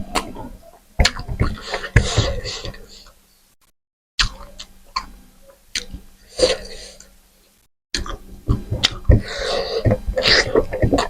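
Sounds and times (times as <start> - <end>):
chewing with wet mouth clicks: 5.7 - 6.0.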